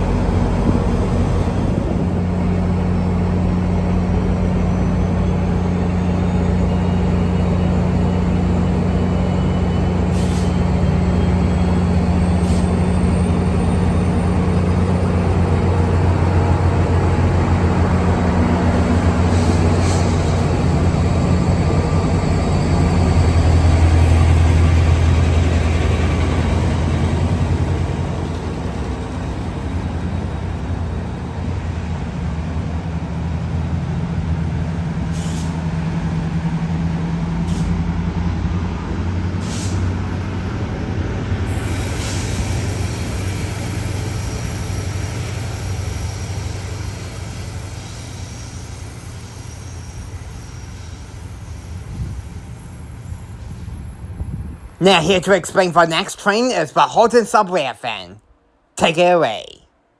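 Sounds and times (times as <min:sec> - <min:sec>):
diesel train passing: 0:00.0 - 0:59.9
high hiss: 0:41.5 - 0:55.7.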